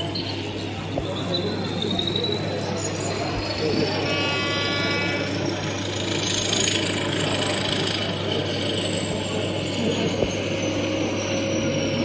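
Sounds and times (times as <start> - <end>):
model train motor whine: 2.8 - 12.0.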